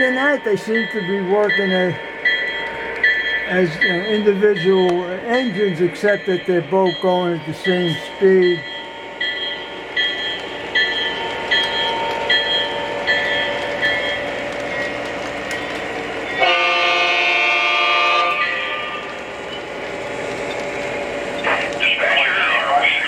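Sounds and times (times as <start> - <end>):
locomotive bell ringing: 0.0 - 21.8
locomotive engine rumble: 0.0 - 23.0
track noise: 0.0 - 23.0
locomotive horn chord: 16.4 - 19.1.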